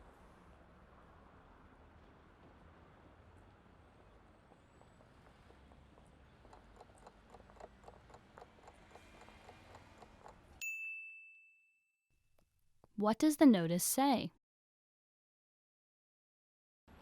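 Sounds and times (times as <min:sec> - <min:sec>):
bright ding: 0:10.6 - 0:12.0.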